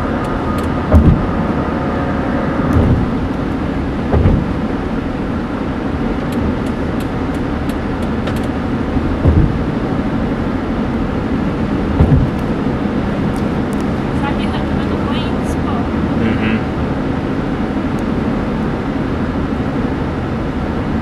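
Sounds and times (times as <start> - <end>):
low thumps: 0.0 - 4.8, 9.0 - 9.8, 11.8 - 12.6
car cabin road noise: 0.0 - 21.0.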